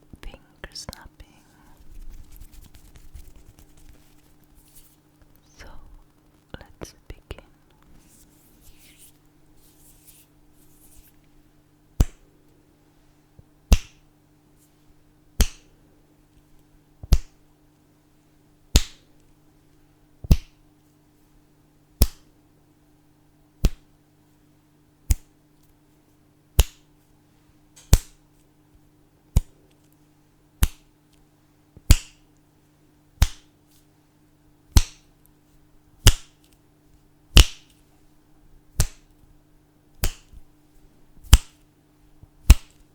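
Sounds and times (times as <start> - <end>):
fingers snapping: 12.0 - 12.2, 13.7 - 14.0, 15.4 - 15.7, 17.0 - 17.4, 18.8 - 19.1, 20.3 - 20.6, 22.0 - 22.3, 23.6 - 23.8, 25.1 - 25.3, 26.6 - 26.9, 27.8 - 28.2, 29.3 - 29.8, 30.6 - 31.2, 31.8 - 32.2, 33.2 - 33.5, 34.7 - 35.1, 36.0 - 36.6, 38.8 - 39.2, 40.0 - 40.4, 41.3 - 41.6, 42.4 - 42.8.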